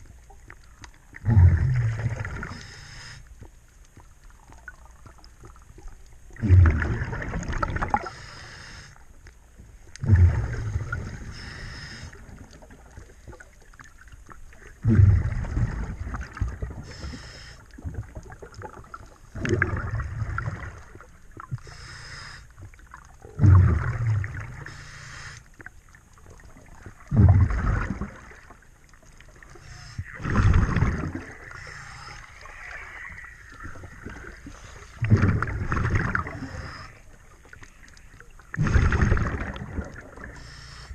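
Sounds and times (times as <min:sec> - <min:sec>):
bubbling exhaust underwater: 0:00.0 - 0:40.9
regulator hiss on inhale: 0:02.5 - 0:03.4, 0:08.0 - 0:09.1, 0:11.2 - 0:12.4, 0:16.8 - 0:17.8, 0:21.6 - 0:22.7, 0:24.6 - 0:25.6, 0:29.5 - 0:30.2, 0:31.5 - 0:32.5, 0:36.3 - 0:37.2, 0:40.3 - 0:40.9.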